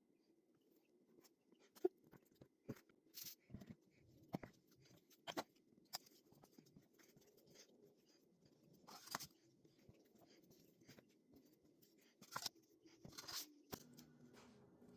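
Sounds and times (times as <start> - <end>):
hands working sticky dough: 0.8 - 14.9
faint steady hum: 5.6 - 14.9.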